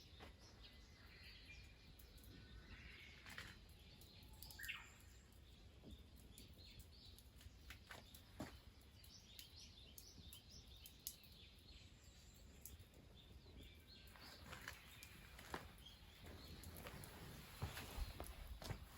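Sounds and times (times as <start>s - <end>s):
faint bird chirps: 0.0s - 7.3s.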